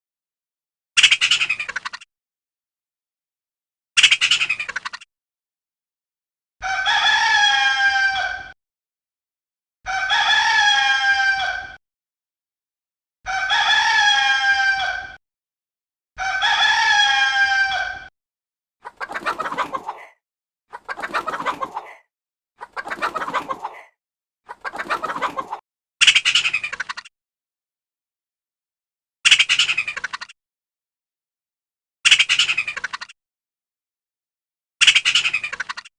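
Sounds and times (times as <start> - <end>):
rooster crowing: 6.6 - 8.4, 9.9 - 11.6, 13.3 - 15.0, 16.2 - 18.0.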